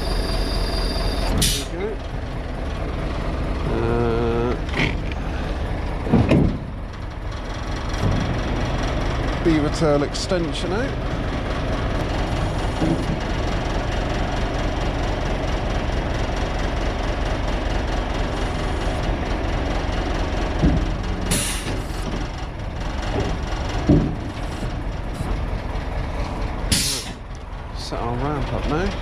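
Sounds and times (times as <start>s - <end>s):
truck engine running: 0.0s - 29.0s
metal clunks: 4.6s - 5.2s, 6.0s - 7.0s, 7.9s - 8.4s, 20.5s - 25.4s, 26.3s - 27.5s.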